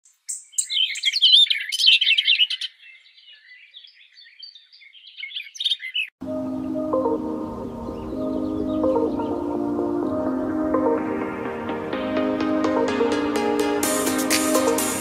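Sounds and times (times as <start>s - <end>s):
songbirds chirping and singing: 0.1s - 11.0s
calm music with held tones: 6.2s - 15.0s.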